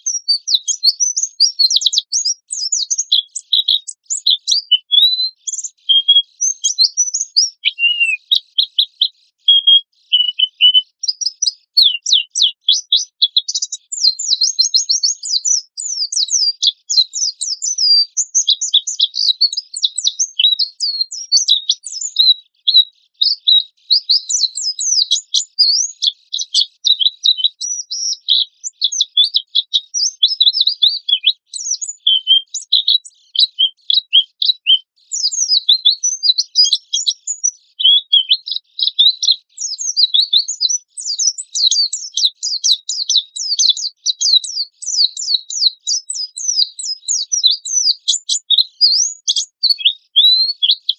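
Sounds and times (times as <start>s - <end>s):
bird singing high chirps: 0.0s - 50.9s.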